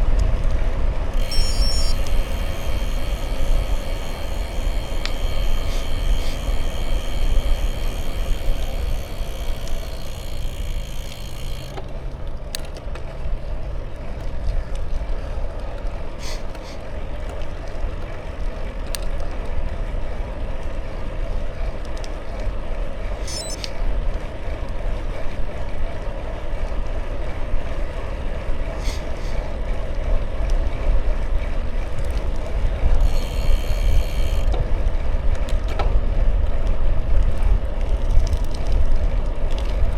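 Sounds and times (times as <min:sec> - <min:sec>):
bicycle tyre noise: 0:00.0 - 0:39.9
sharp clicks: 0:01.1 - 0:13.0.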